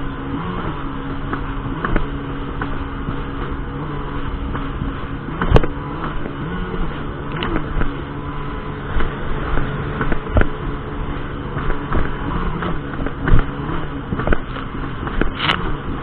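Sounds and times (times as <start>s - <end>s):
jet ski engine running: 0.0s - 16.0s
wind and water noise: 0.0s - 16.0s
sharp thumps: 8.9s - 10.6s.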